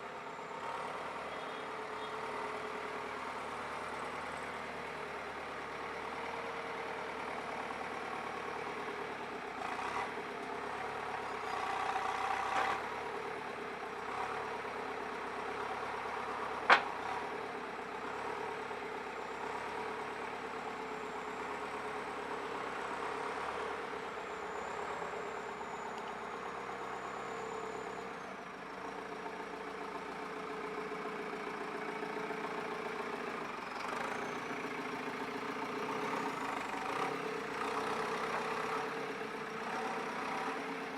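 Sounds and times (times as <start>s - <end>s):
diesel engine idling: 13.1s - 40.9s.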